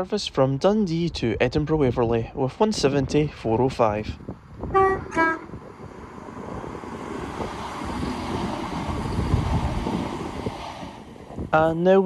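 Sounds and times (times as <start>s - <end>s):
train rumbling on rails: 2.6s - 12.0s
train horn blasts: 4.7s - 5.6s.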